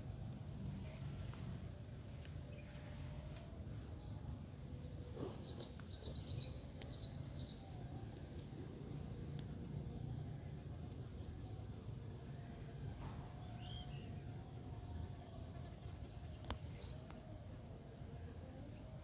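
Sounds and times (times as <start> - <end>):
faint high bird chirps: 0.6 - 8.2.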